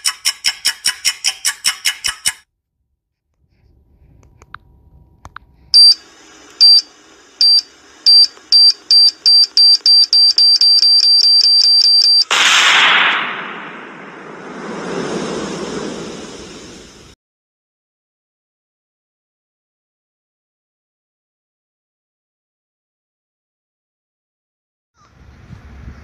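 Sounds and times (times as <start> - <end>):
electronic beeps: 7.4 - 12.3
high beep speeding into tone: 8.9 - 12.3.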